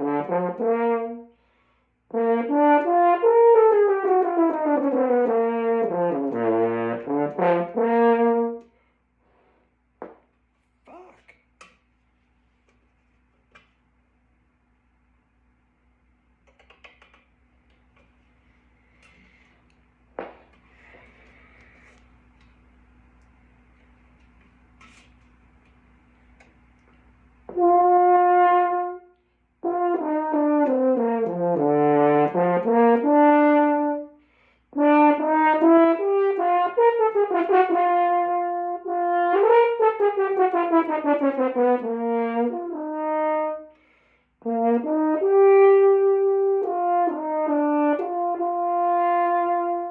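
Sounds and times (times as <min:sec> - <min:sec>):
brass instrument warm-up notes: 0:00.0 - 0:09.7, 0:27.5 - 0:49.9.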